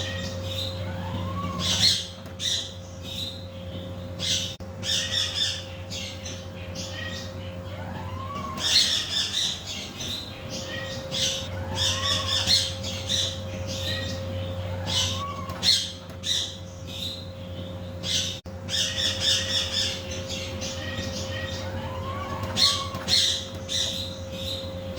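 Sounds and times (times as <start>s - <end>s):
parrot squawking: 0.0s - 2.8s, 4.2s - 16.6s, 18.0s - 24.1s
faint hum: 0.0s - 24.9s.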